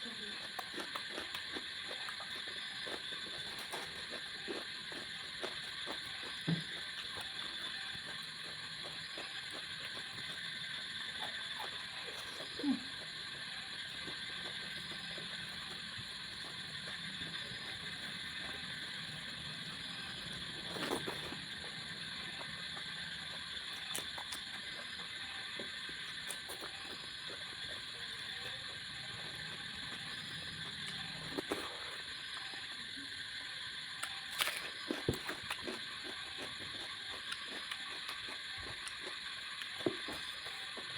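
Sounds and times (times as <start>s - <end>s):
wet chewing smacks and clicks: 0.4s - 18.9s, 34.0s - 40.9s.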